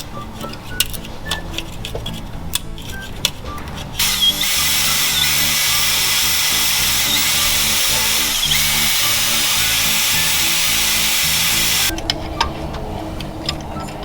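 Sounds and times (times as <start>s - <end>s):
power tool grinding: 3.8s - 11.9s.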